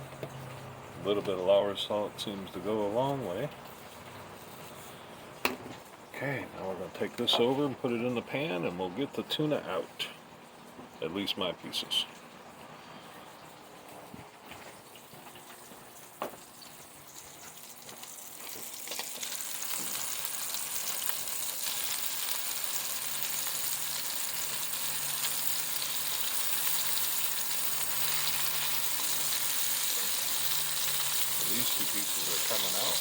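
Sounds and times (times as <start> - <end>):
fish frying in a pan: 13.5 - 33.0.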